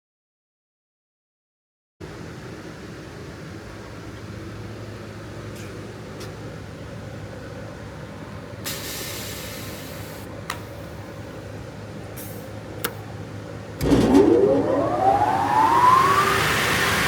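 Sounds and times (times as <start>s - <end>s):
short hiss: 8.7s - 10.3s
steady machine hum: 10.3s - 17.0s
chop saw motor whining up: 13.8s - 17.0s.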